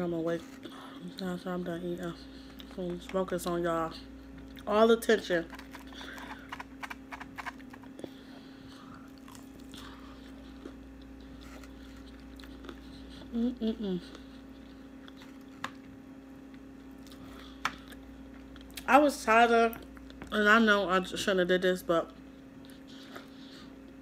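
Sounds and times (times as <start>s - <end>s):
steady low hum: 0.0s - 24.0s
person chewing food: 5.5s - 18.8s.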